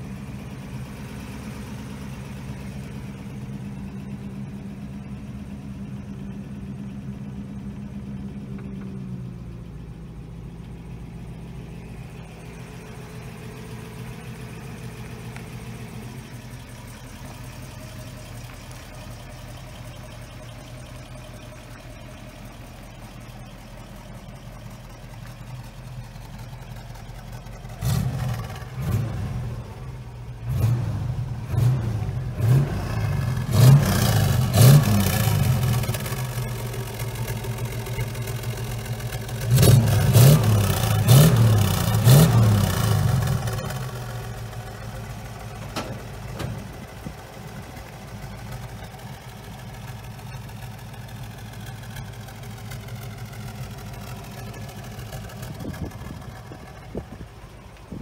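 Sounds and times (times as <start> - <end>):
car engine idling: 0.0 - 58.0
engine revving surges: 27.7 - 44.2.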